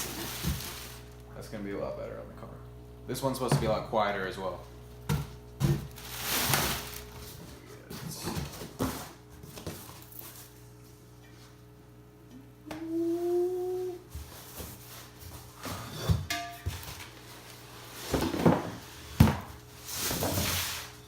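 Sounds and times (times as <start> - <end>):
packaging rustling: 0.0 - 1.2, 5.8 - 7.6
steady low hum: 0.0 - 20.1.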